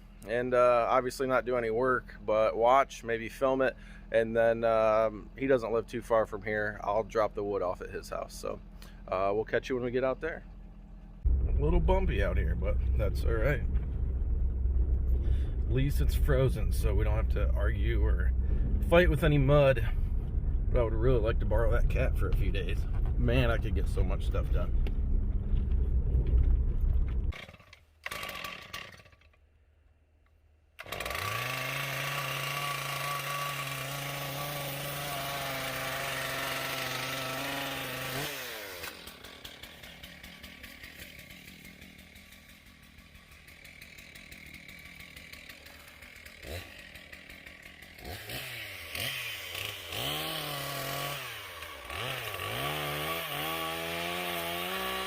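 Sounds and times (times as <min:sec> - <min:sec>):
truck cab rumble: 0:10.0 - 0:27.4
chainsaw revving: 0:27.3 - 0:29.4, 0:30.8 - 0:55.0.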